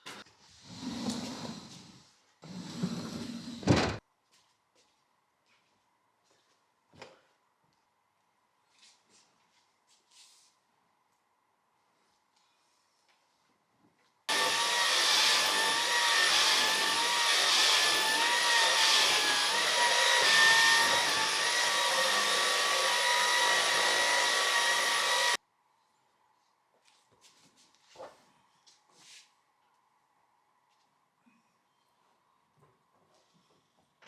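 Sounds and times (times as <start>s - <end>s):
vacuum cleaner running: 14.3s - 25.4s.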